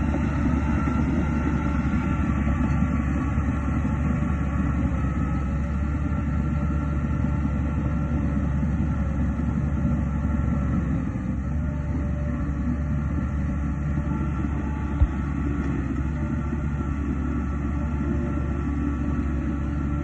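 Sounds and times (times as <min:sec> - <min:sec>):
bulldozer diesel engine drone: 0:00.0 - 0:20.0.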